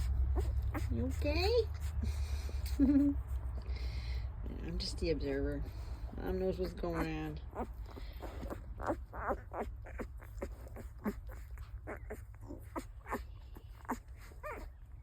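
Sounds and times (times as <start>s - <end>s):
puppies squeaking and whimpering: 0.0s - 4.1s, 4.8s - 15.0s
puppy rising squeal: 8.3s - 14.8s.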